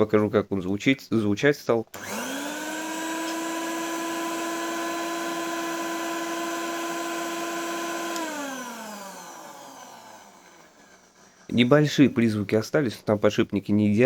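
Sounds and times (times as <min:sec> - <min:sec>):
vacuum cleaner motor whine: 0:02.0 - 0:11.2.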